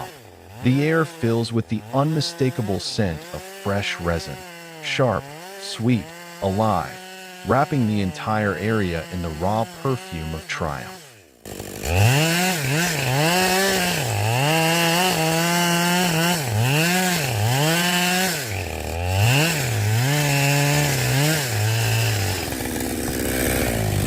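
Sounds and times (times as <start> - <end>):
chainsaw cutting through log: 0.0 - 24.0.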